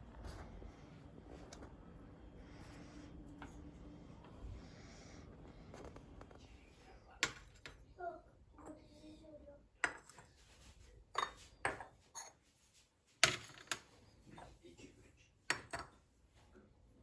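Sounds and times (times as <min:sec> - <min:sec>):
dishes clattering and clinking: 0:11.1 - 0:12.4, 0:15.5 - 0:16.0.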